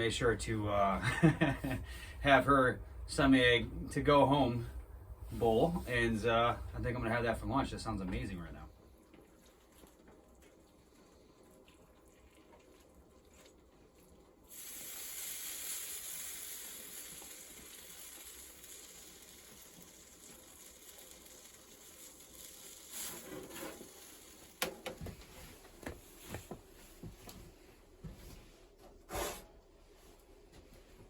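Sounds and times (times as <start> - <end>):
food sizzling in a pan: 14.5 - 24.6.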